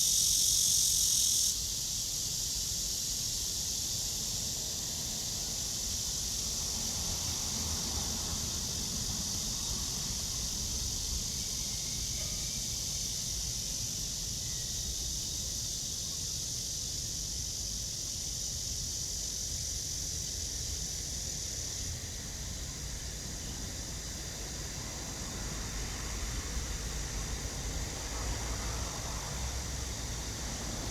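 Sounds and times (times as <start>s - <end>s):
cicada buzzing: 0.0s - 4.0s.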